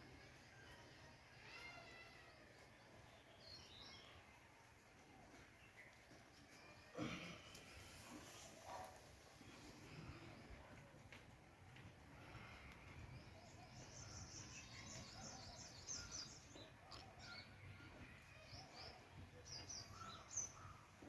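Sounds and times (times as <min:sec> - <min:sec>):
faint bird chirping: 0:12.1 - 0:21.0.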